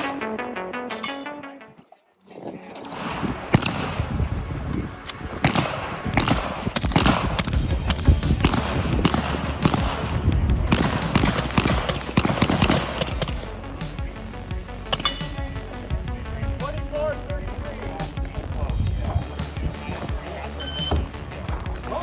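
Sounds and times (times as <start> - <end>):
gunshots: 2.9 - 4.3, 5.1 - 14.2.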